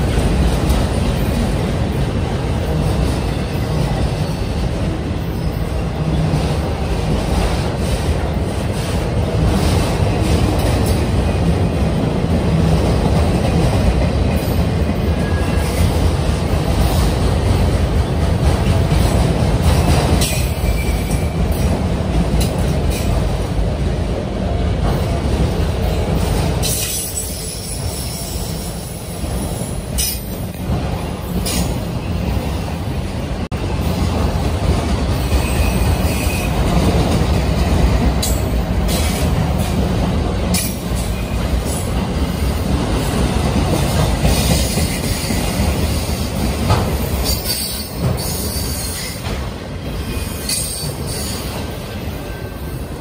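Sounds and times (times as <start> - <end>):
steel wheels rumbling on rail: 0.0 - 53.0.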